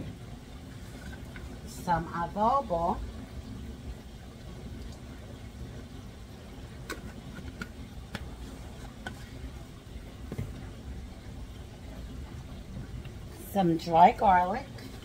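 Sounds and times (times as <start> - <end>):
oil pops and crackles: 6.8 - 9.5.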